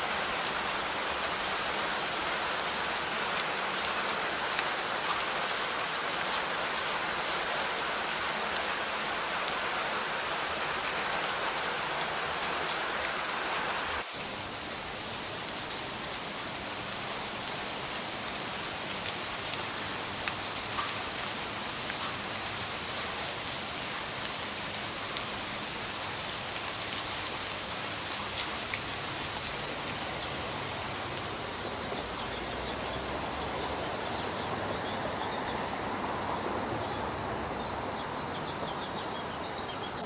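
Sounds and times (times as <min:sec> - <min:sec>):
steady rain falling: 0:00.0 - 0:40.0
raindrops ticking: 0:14.4 - 0:32.3.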